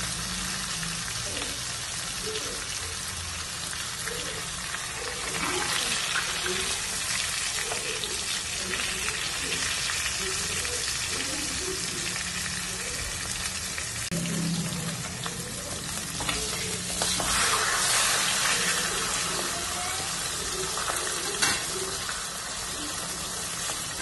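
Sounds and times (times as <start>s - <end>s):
fish sizzling in hot oil: 0.0s - 24.0s
metal spatula stirring: 16.2s - 18.8s.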